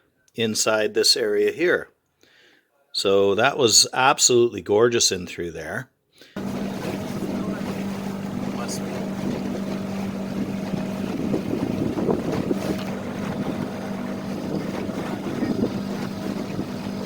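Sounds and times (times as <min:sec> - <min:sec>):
outboard motor running: 0:06.4 - 0:17.0
water rushing past hull: 0:06.4 - 0:17.0
wind buffeting microphone: 0:06.4 - 0:17.0.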